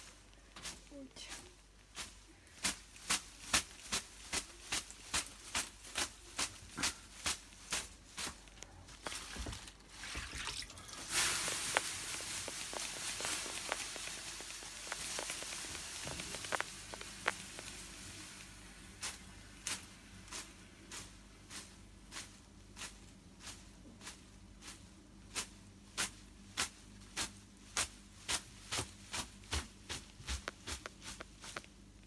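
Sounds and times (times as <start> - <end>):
bath whisk patting: 9.0 - 21.8
water hissing on hot stones: 9.0 - 22.2.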